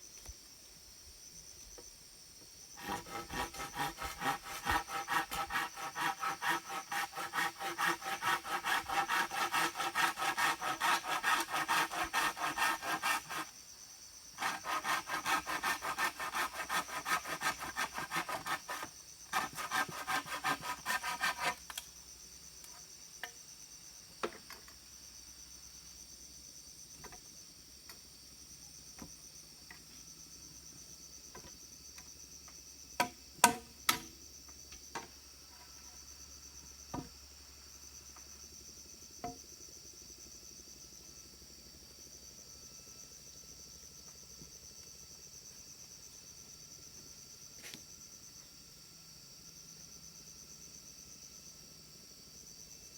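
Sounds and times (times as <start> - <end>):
insects droning: 0.0 - 52.9
hand saw cutting wood: 2.8 - 13.5, 14.4 - 21.6.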